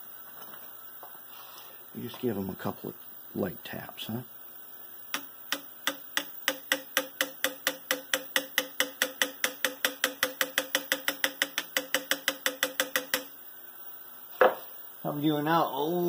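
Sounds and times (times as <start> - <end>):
hammer tapping on metal punch: 5.2 - 13.3.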